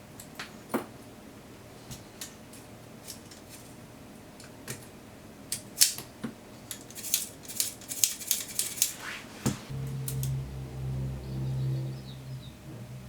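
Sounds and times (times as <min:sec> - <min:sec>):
small tools clicking and tapping: 0:06.7 - 0:09.0.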